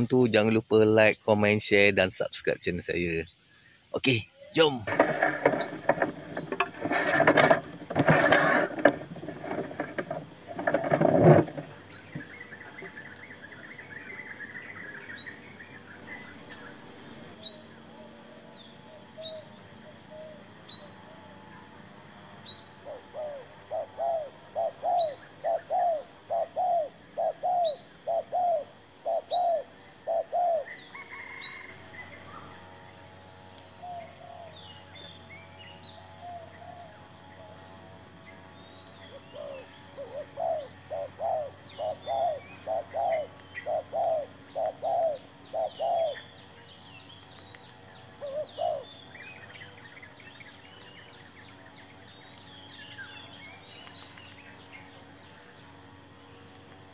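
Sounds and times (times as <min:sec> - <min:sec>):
rustling and knocking: 0:04.8 - 0:12.3.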